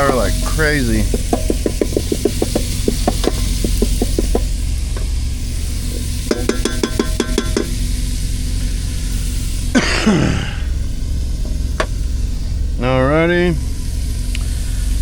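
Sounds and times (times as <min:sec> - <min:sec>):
utensil clicking against pot: 0:00.0 - 0:04.6, 0:05.9 - 0:07.8
food sauteing in a pot: 0:00.0 - 0:09.8
steady low hum: 0:00.0 - 0:15.0.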